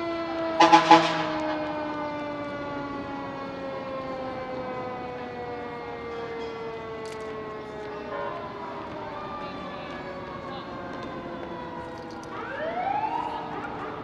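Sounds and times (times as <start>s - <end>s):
fire truck siren winding down: 0.0s - 14.0s
loud horn blasts: 0.4s - 1.7s.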